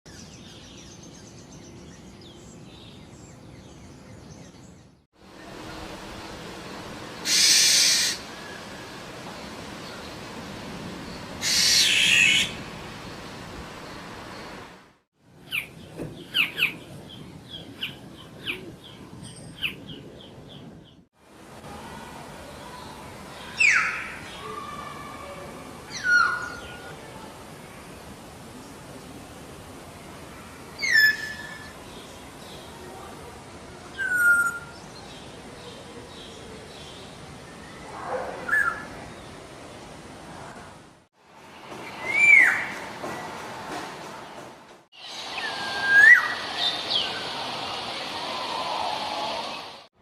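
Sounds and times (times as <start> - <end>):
bird hissing screeches: 7.2 - 8.2, 11.4 - 12.5
birds chirping: 15.4 - 21.0.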